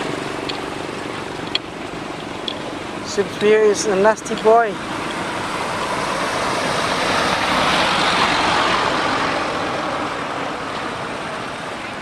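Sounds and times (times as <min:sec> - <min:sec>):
motor vehicle passing by: 0:04.8 - 0:11.8.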